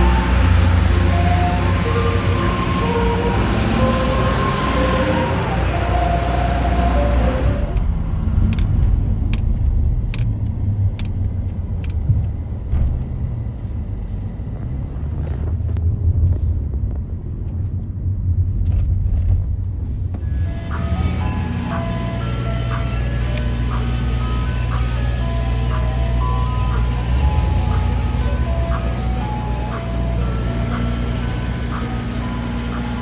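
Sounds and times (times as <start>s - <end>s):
vehicle engine rumbling: 0.0s - 33.0s
ice cream truck music-box jingle: 20.2s - 33.0s.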